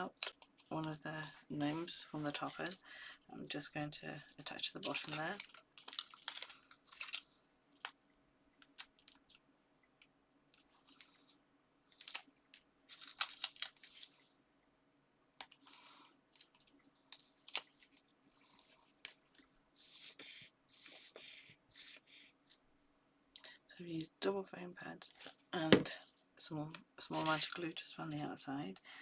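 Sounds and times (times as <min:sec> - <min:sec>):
paper rustling: 0:04.5 - 0:08.0, 0:10.8 - 0:14.4, 0:27.1 - 0:27.6.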